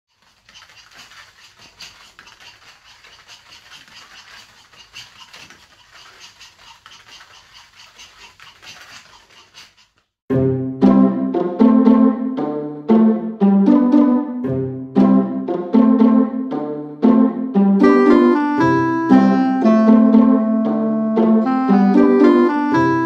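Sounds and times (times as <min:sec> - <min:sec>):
dog's feet pattering on a mat: 0:00.1 - 0:10.2.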